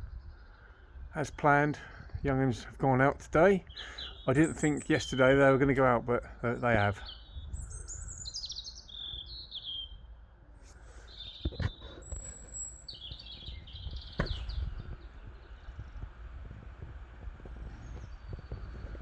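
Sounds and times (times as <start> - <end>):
wind rumble on microphone: 0.0 - 1.2, 6.8 - 10.2, 11.2 - 19.0
songbird singing: 0.0 - 19.0
sharp knocks: 14.0 - 14.7.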